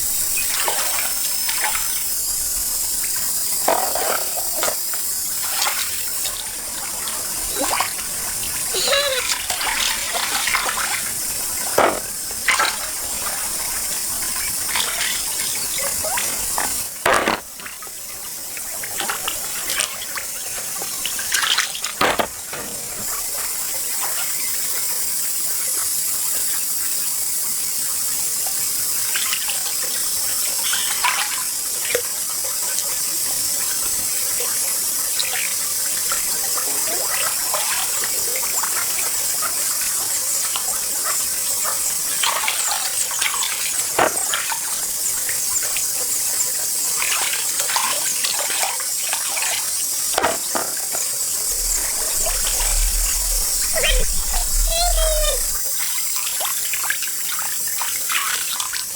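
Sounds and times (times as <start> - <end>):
water sloshing and splashing: 43.8 - 44.7, 50.2 - 55.6
steady high hiss: 50.2 - 55.6.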